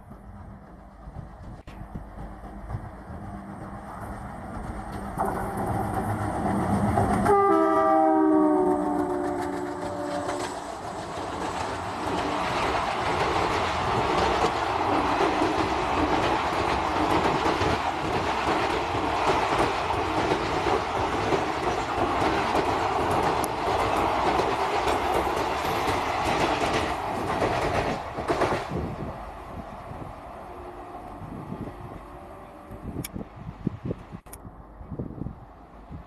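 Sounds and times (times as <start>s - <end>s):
wheels clacking over rail joints: 0.0s - 7.7s, 8.9s - 29.3s
train coaches rumbling past: 0.0s - 36.0s.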